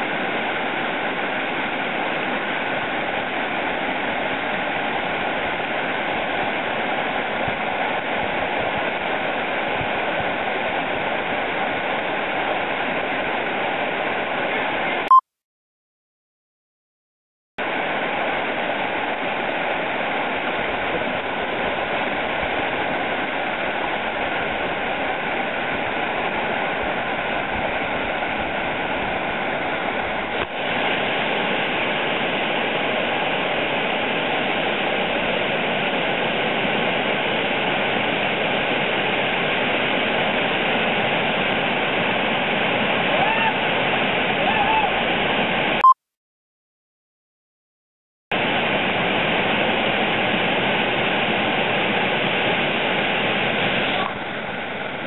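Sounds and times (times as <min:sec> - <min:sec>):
waterfall rushing: 0:17.7 - 0:45.8.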